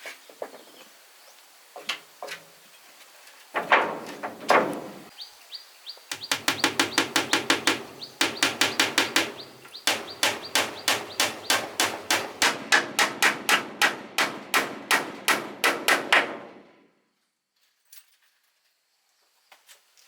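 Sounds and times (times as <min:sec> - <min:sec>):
bird chirping: 0:05.0 - 0:12.4
hammer blows on wood: 0:06.1 - 0:16.6
heavy wooden knocks: 0:06.1 - 0:16.6.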